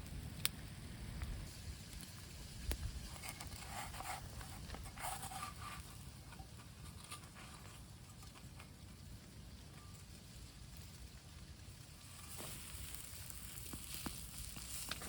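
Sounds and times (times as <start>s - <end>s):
rustling: 3.0s - 8.9s.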